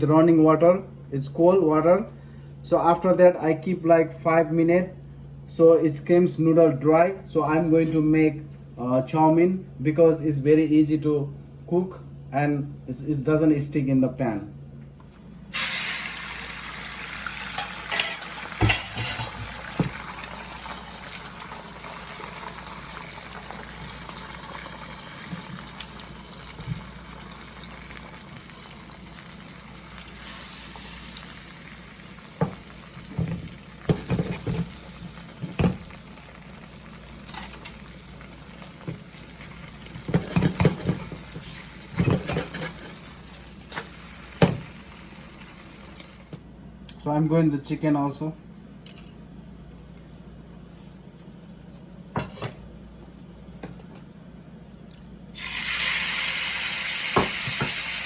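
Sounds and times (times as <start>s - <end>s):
food sizzling in oil: 15.5s - 46.3s, 55.4s - 58.0s.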